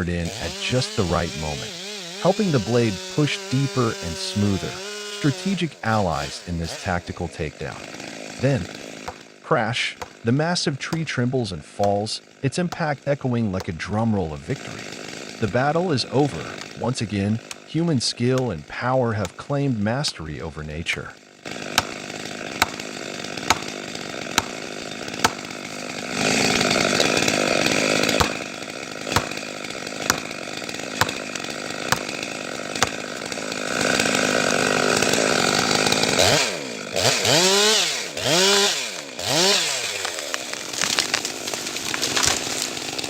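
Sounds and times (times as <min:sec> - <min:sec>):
chainsaw running and cutting: 0:00.0 - 0:43.0.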